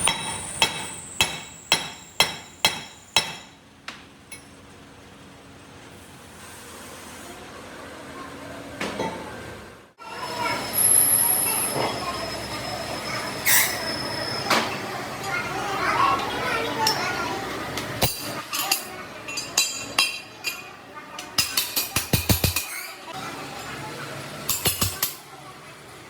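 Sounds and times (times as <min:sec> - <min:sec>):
workshop noise: 0:00.0 - 0:26.0
hammer ringing on steel: 0:00.1 - 0:03.5.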